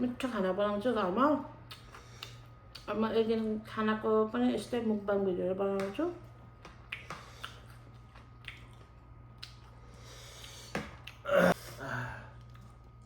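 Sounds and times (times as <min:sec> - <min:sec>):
breathy throat sound: 0:11.2 - 0:12.3.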